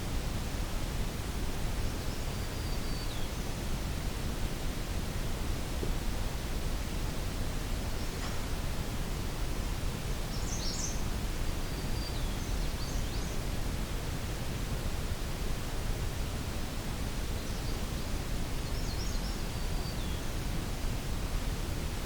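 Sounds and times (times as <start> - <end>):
low rumble and hiss: 0.0 - 22.0
faint songbird phrases: 1.9 - 3.6, 10.2 - 13.5, 17.2 - 20.4.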